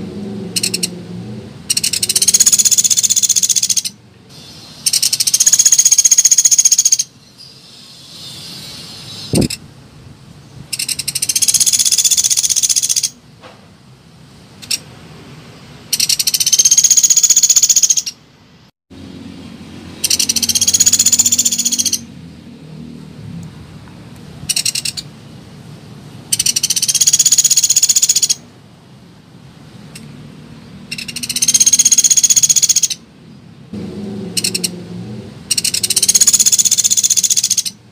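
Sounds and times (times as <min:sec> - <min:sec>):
woodpecker rattling trills: 0:00.6 - 0:00.9, 0:01.7 - 0:04.0, 0:04.8 - 0:07.1, 0:10.7 - 0:13.2, 0:15.9 - 0:18.2, 0:20.0 - 0:22.1, 0:24.5 - 0:25.1, 0:26.3 - 0:28.4, 0:30.9 - 0:33.0, 0:34.4 - 0:34.7, 0:35.5 - 0:37.8.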